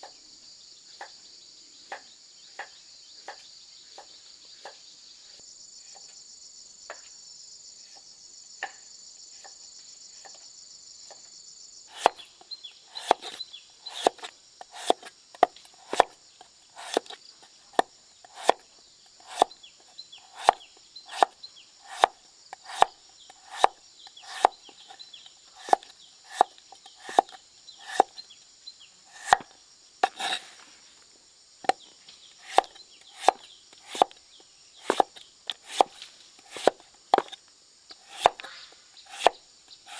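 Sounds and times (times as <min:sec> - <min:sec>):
insects chirring: 0:00.0 - 0:39.9
chopping strokes: 0:11.9 - 0:12.3, 0:12.9 - 0:19.6, 0:20.2 - 0:28.2, 0:29.1 - 0:31.0, 0:31.6 - 0:34.2, 0:34.8 - 0:39.9.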